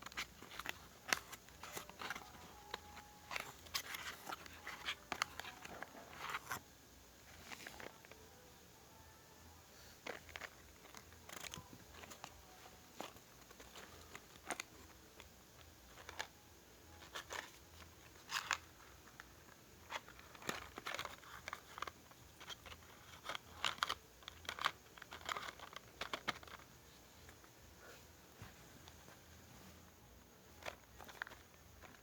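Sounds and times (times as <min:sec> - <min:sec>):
objects being handled: 0:00.0 - 0:32.0.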